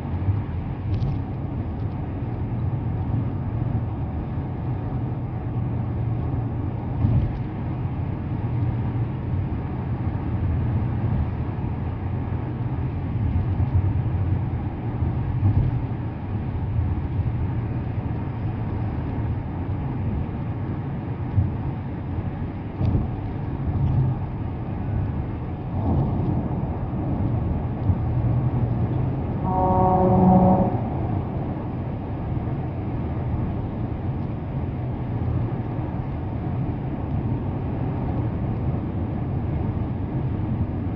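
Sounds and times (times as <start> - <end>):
car road and tyre rumble: 0.0 - 40.9
steady pitched tone: 29.4 - 32.0.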